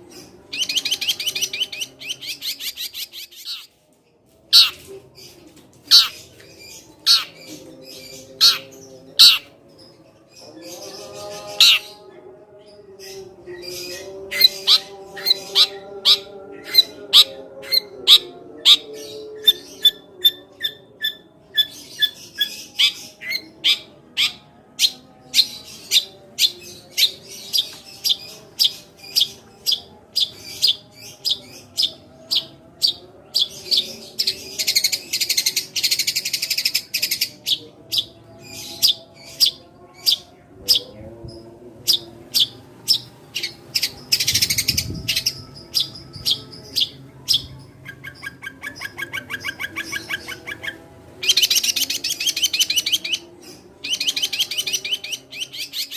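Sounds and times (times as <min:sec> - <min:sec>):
bird harsh chattering: 0:04.6 - 0:04.8, 0:09.2 - 0:09.5.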